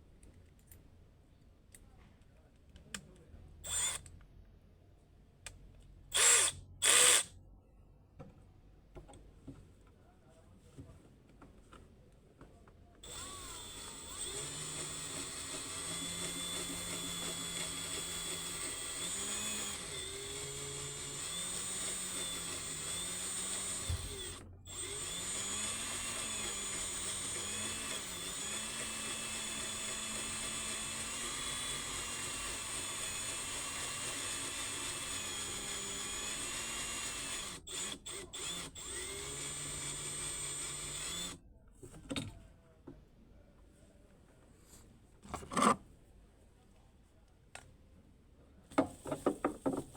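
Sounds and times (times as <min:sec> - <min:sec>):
power drill running: 0:03.6 - 0:04.0, 0:06.1 - 0:07.3, 0:13.0 - 0:41.4.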